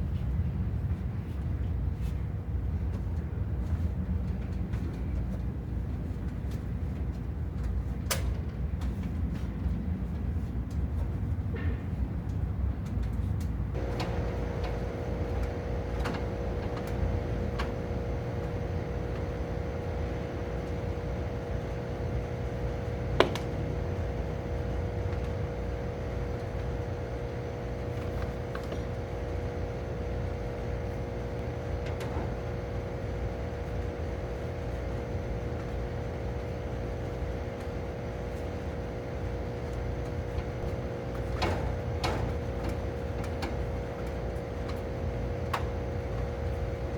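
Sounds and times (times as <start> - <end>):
machine hum: 13.7 - 46.9.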